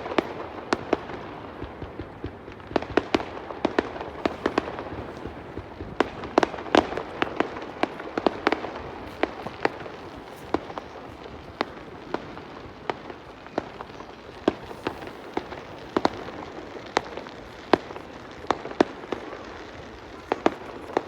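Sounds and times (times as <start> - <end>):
fireworks bangs and pops: 0.0 - 21.0
steady hiss: 3.3 - 21.0.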